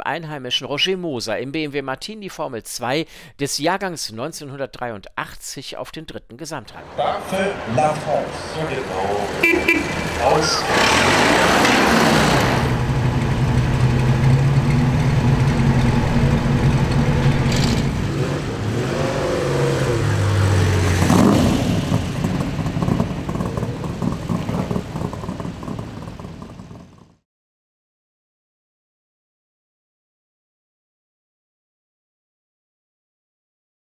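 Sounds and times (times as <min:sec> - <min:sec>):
racing car engines passing: 0:06.7 - 0:27.0.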